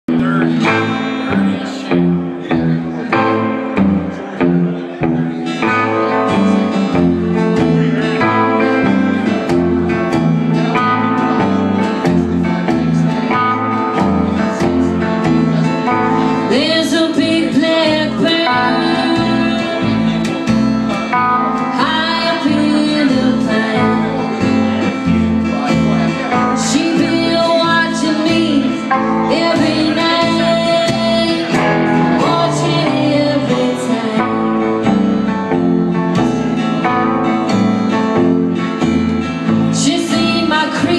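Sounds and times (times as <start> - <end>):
low bass line: 0.0 - 40.0
guitar accompaniment: 0.0 - 40.9
woman singing: 16.0 - 20.4, 21.5 - 24.8, 26.4 - 35.1, 39.6 - 40.9.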